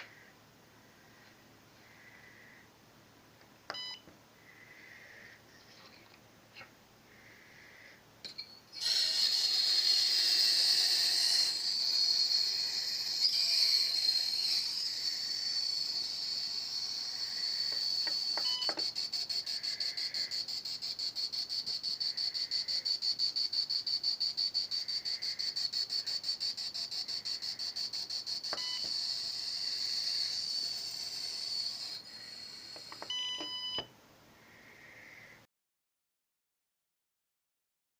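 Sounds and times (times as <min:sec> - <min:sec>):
shrill high-pitched pulsing buzz: 0:08.2 - 0:33.9
short electronic beeps: 0:18.4 - 0:18.9, 0:33.0 - 0:33.9.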